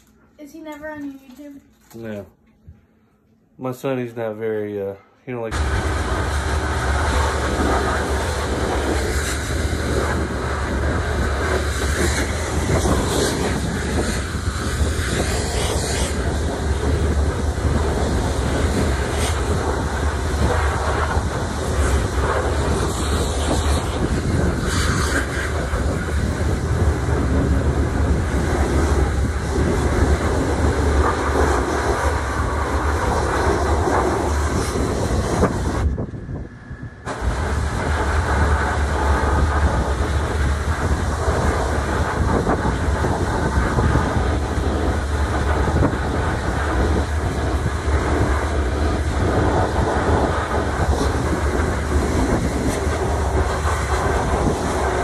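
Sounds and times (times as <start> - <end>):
low hum: 5.0 - 55.0
loud rumbling noise: 5.5 - 55.0.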